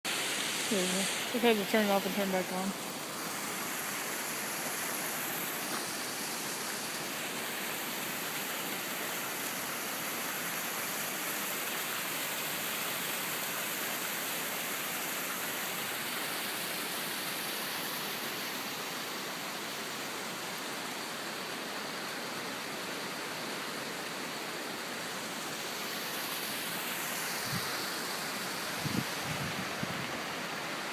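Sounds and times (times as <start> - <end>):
waterfall rushing: 0.0 - 30.9.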